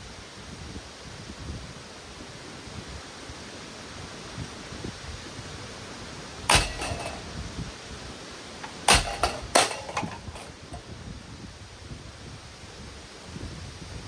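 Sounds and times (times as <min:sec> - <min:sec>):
loose parts rattling: 0:06.5 - 0:07.4, 0:08.6 - 0:10.8.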